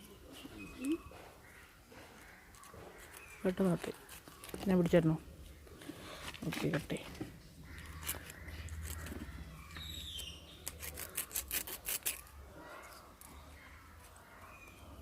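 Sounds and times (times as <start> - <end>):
knife cutting palm leaves: 10.6 - 12.3.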